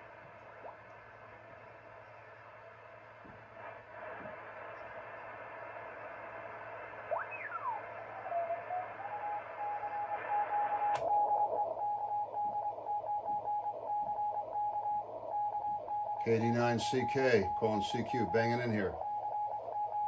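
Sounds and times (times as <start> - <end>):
radio band hiss: 1.4 - 11.0, 16.2 - 19.1.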